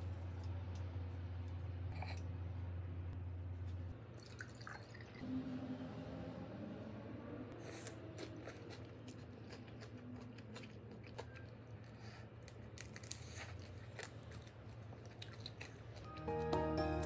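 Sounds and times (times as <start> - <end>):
chewing and crunching: 7.6 - 16.6
music: 16.0 - 17.0.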